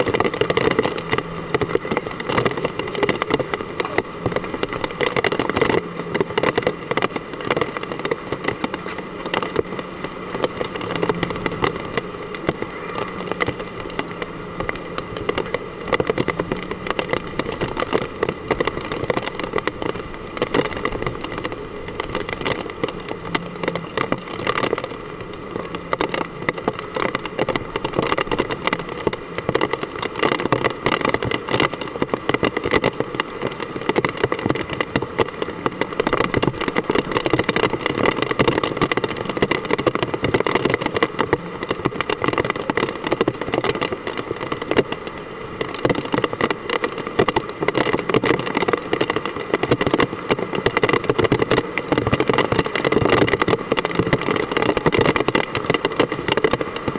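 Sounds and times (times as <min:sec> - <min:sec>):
heavy rain pouring: 0:00.0 - 0:56.9.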